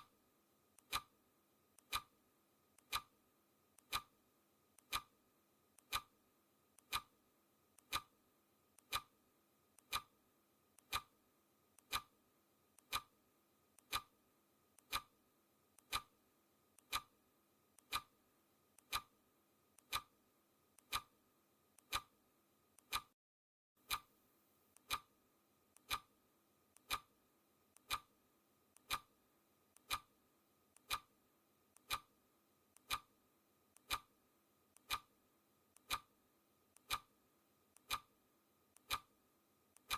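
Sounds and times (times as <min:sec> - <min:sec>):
clock ticking: 0:00.8 - 0:01.1, 0:01.8 - 0:02.1, 0:02.8 - 0:03.1, 0:03.8 - 0:04.1, 0:04.8 - 0:05.1, 0:05.8 - 0:06.1, 0:06.8 - 0:07.1, 0:07.8 - 0:08.1, 0:08.8 - 0:09.1, 0:09.8 - 0:10.1, 0:10.8 - 0:11.1, 0:11.8 - 0:12.1, 0:12.8 - 0:13.1, 0:13.8 - 0:14.1, 0:14.8 - 0:15.1, 0:15.8 - 0:16.1, 0:16.8 - 0:17.1, 0:17.8 - 0:18.2, 0:18.8 - 0:19.1, 0:19.8 - 0:20.1, 0:20.8 - 0:21.1, 0:21.8 - 0:22.1, 0:22.8 - 0:23.1, 0:23.8 - 0:24.1, 0:24.8 - 0:25.1, 0:25.8 - 0:26.1, 0:26.8 - 0:27.1, 0:27.8 - 0:28.1, 0:28.8 - 0:29.1, 0:29.8 - 0:30.1, 0:30.8 - 0:31.1, 0:31.8 - 0:32.1, 0:32.8 - 0:33.1, 0:33.8 - 0:34.1, 0:34.8 - 0:35.1, 0:35.8 - 0:36.1, 0:36.8 - 0:37.1, 0:37.8 - 0:38.1, 0:38.8 - 0:39.1.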